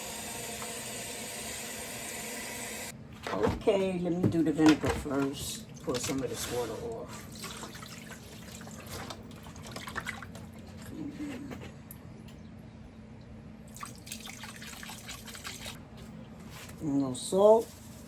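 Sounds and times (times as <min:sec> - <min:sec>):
water splashing and dripping: 0:07.2 - 0:10.6, 0:13.7 - 0:15.8.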